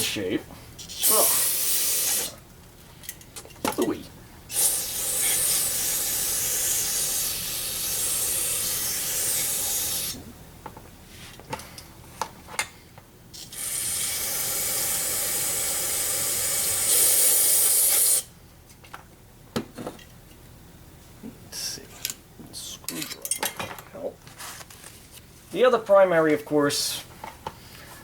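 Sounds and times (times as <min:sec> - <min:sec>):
aerosol spray hissing: 0:00.9 - 0:02.4, 0:04.5 - 0:10.2, 0:13.5 - 0:18.3.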